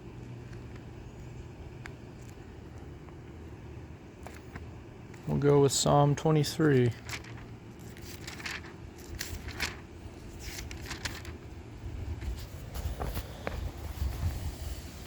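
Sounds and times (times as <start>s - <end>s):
book pages rustling: 0.0s - 5.7s, 6.6s - 14.9s
light crackles and scrapes: 12.1s - 15.0s.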